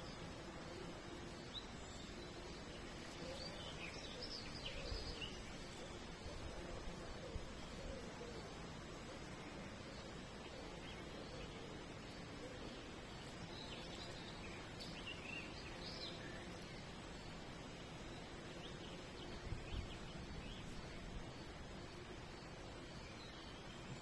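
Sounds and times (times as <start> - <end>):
outdoor background hiss: 0.0 - 24.0
small birds chirping: 0.0 - 24.0.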